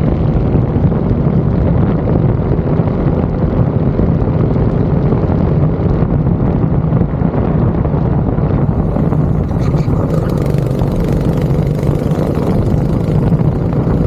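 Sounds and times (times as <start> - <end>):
wind buffeting microphone: 0.0 - 14.0
go-kart engine running: 8.6 - 14.0.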